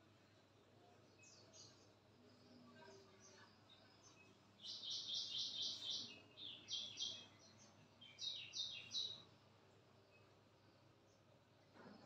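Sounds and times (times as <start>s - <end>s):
songbird chirping: 0.3s - 9.4s.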